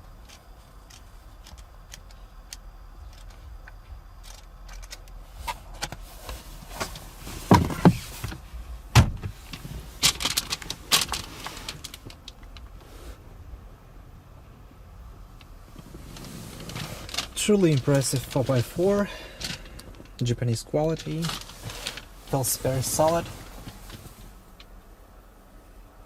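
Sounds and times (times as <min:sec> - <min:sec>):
rustling: 0:04.2 - 0:13.2, 0:15.4 - 0:20.3, 0:20.9 - 0:24.7
heavy thumps: 0:06.8 - 0:10.2.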